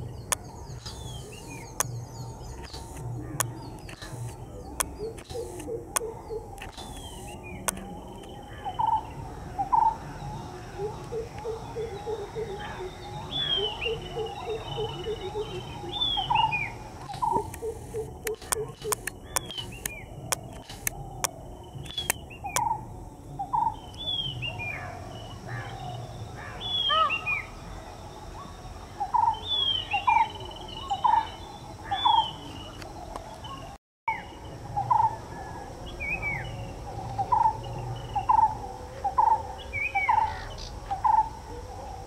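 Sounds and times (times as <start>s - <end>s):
bird repeating low note: 0.0s - 27.6s
birds chirping: 0.0s - 42.0s
sharp clicks: 2.6s - 8.4s, 17.0s - 22.7s.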